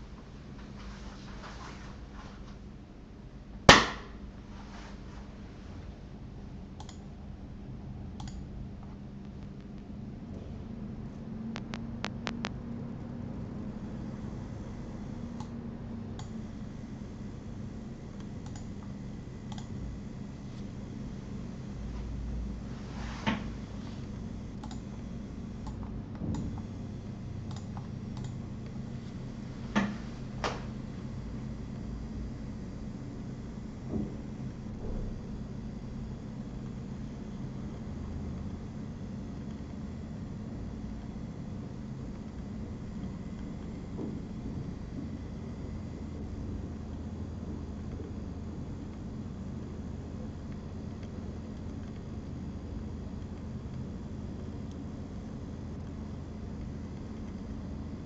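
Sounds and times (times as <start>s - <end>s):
faint electrical hum: 0.0s - 58.0s
crackling pops: 3.7s - 4.2s, 11.5s - 12.6s
sharp loud click: 3.7s - 4.2s
faint high ticks: 18.1s - 19.8s.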